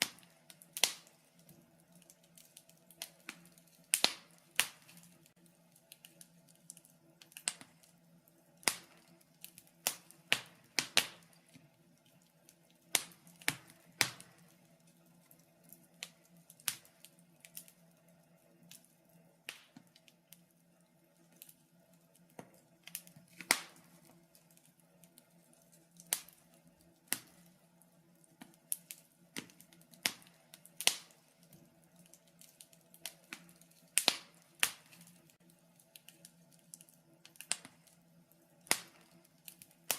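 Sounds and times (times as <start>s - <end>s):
faint steady hiss: 0.0s - 39.9s
wood fire crackling: 0.0s - 39.9s.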